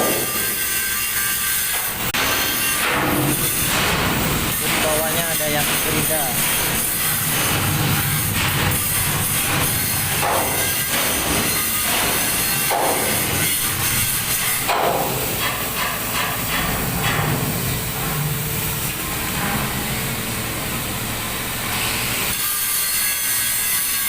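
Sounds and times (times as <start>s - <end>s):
angle grinder on steel: 0.0s - 16.6s, 21.3s - 24.0s
metallic knocks: 9.4s - 18.3s.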